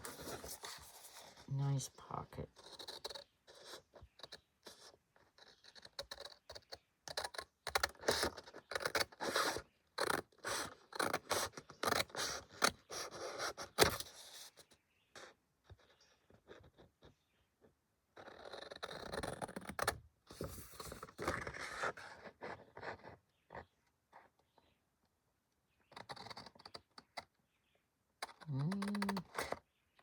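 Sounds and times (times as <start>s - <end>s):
paper scraping and rustling: 0.0s - 1.5s.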